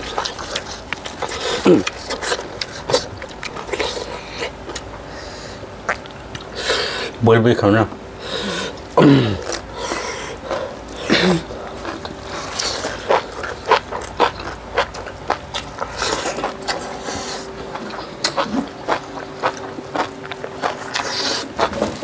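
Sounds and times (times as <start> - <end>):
people chewing and lip smacking: 0.0 - 7.2, 8.3 - 22.0.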